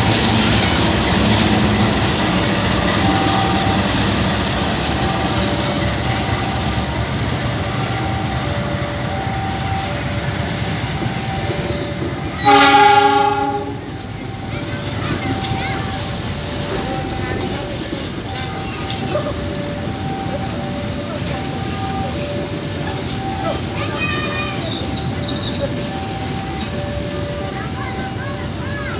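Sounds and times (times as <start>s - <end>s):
train rumbling on rails: 0.0s - 28.9s
locomotive horn: 11.2s - 14.2s.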